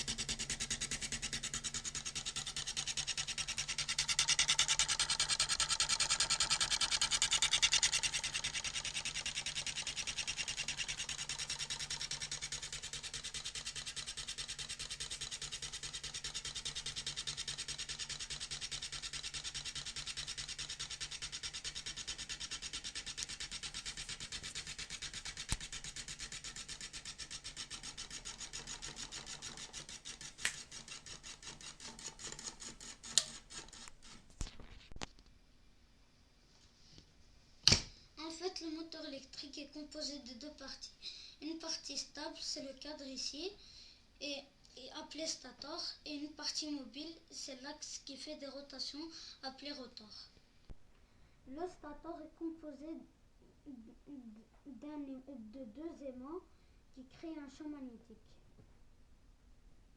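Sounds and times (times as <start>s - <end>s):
small electric motor buzzing: 0.0s - 34.2s.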